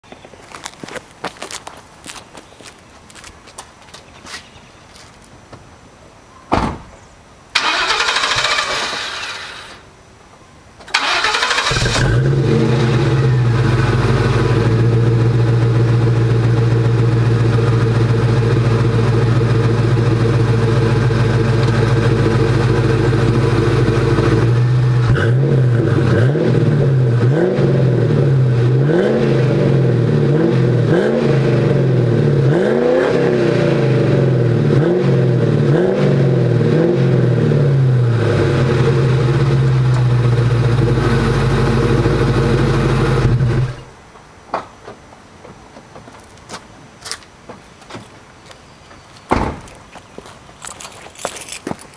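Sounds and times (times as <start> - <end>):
car engine starting: 7.6 - 9.8, 10.9 - 43.9
car engine idling: 11.0 - 26.3, 38.0 - 43.8
car engine revving: 11.0 - 43.8.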